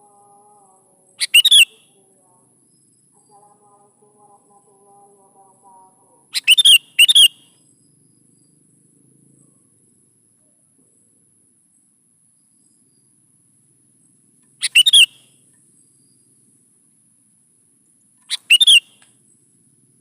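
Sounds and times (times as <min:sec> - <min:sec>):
faint high-pitched whine: 0:00.0 - 0:20.0
bird chirping: 0:01.2 - 0:02.0, 0:06.3 - 0:08.6, 0:14.6 - 0:16.4, 0:18.2 - 0:19.1.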